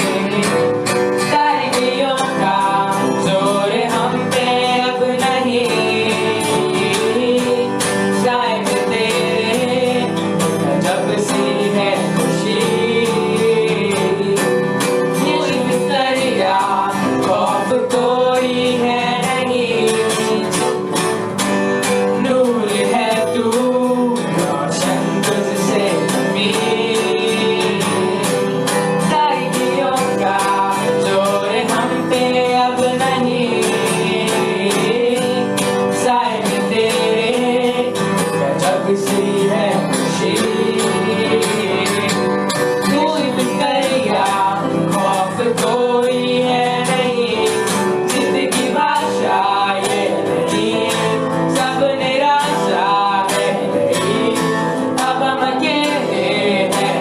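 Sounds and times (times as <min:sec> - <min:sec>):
strummed guitar: 0:00.0 - 0:57.0
worship band music: 0:00.0 - 0:57.0.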